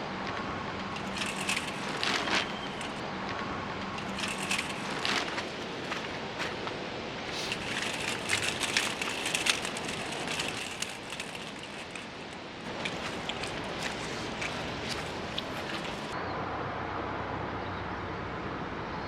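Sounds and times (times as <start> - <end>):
small clicks and knocks: 0.3 - 3.0, 7.3 - 16.2
fabric rustling and crackling: 0.8 - 3.0, 4.0 - 16.2.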